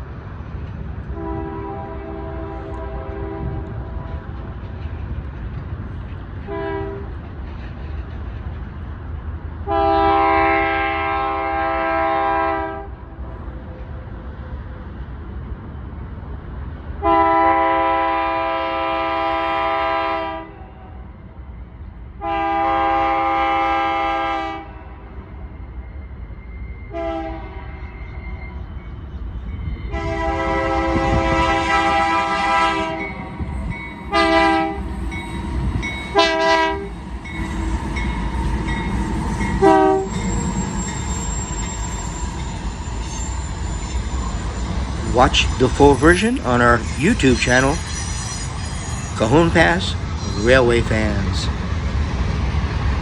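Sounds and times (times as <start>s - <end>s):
train rumbling past: 0.0s - 53.0s
locomotive air horn chord: 1.1s - 4.2s, 6.5s - 7.1s, 9.6s - 12.9s, 17.0s - 20.7s, 22.2s - 25.0s, 26.9s - 27.8s, 29.9s - 33.1s, 34.1s - 34.9s, 36.1s - 36.9s, 39.5s - 40.6s.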